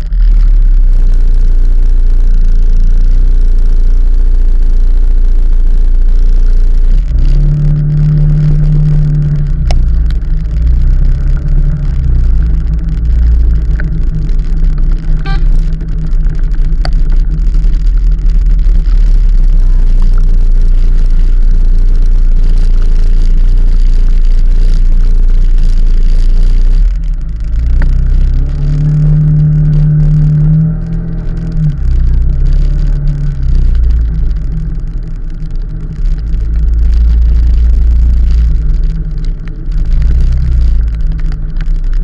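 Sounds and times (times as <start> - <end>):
wind and road noise rumble: 0.0 - 42.0
steady engine note: 7.0 - 21.1.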